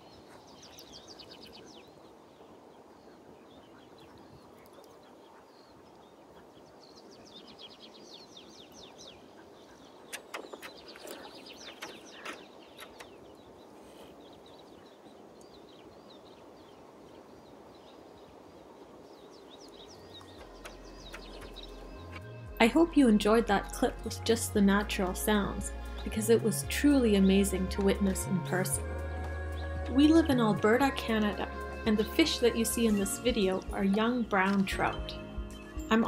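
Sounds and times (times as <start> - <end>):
small bird singing: 0.0 - 22.5
knocks and clicks: 20.2 - 22.3.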